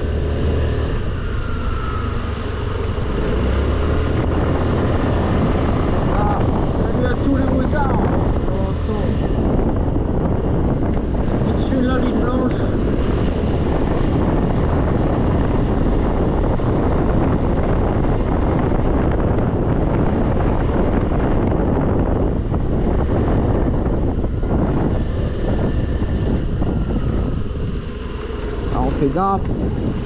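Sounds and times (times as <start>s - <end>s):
road noise: 0.0s - 30.0s
scooter engine: 0.0s - 30.0s
wind rushing over microphone: 0.0s - 30.0s.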